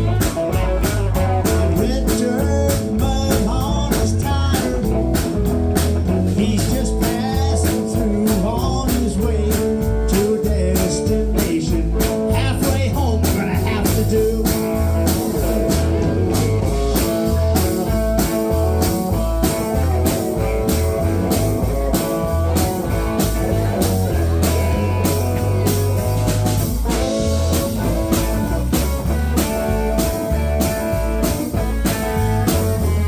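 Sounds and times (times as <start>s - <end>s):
bass: 0.0s - 33.0s
guitar lines: 0.0s - 33.0s
steady drum beat: 0.0s - 33.0s.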